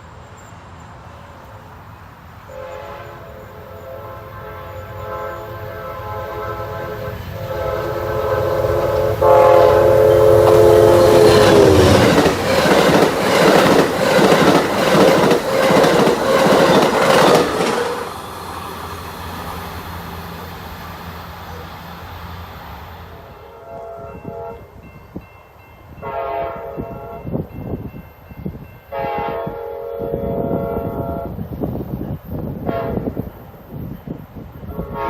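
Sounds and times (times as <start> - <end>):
train rumble: 0.0 - 35.0
locomotive horn: 2.5 - 12.2, 23.1 - 24.8, 26.0 - 27.4, 28.9 - 31.5, 32.6 - 33.3, 34.7 - 35.0
train wheels clacking over rail joints: 10.4 - 18.2.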